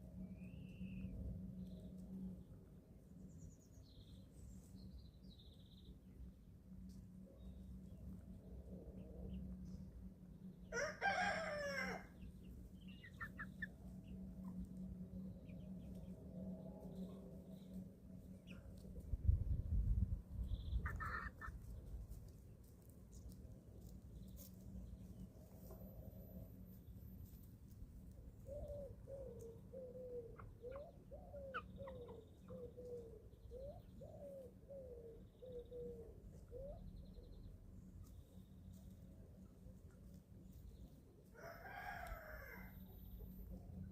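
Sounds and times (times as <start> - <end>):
faint steady hum: 0.0 - 43.9
chicken crowing: 10.7 - 12.2, 41.3 - 42.9
chicks cheeping: 12.1 - 14.8, 19.8 - 21.7, 29.6 - 34.0
chicks peeping: 12.2 - 14.8, 20.4 - 22.2
bird cooing: 28.4 - 36.9.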